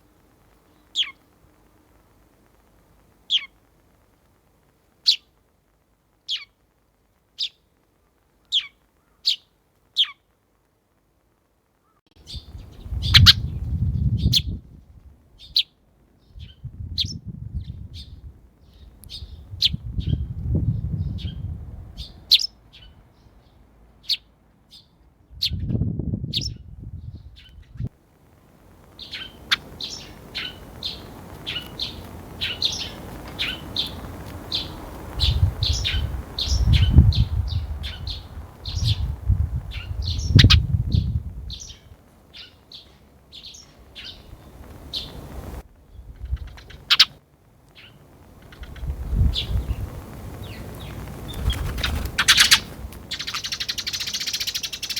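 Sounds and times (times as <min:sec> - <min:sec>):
sparrow chirping: 0:00.8 - 0:01.2, 0:03.3 - 0:03.5, 0:05.0 - 0:05.3, 0:06.3 - 0:06.5, 0:08.5 - 0:10.2, 0:12.2 - 0:14.6, 0:16.3 - 0:27.8, 0:29.0 - 0:39.1, 0:39.7 - 0:45.3, 0:46.0 - 0:47.2, 0:47.8 - 0:54.9.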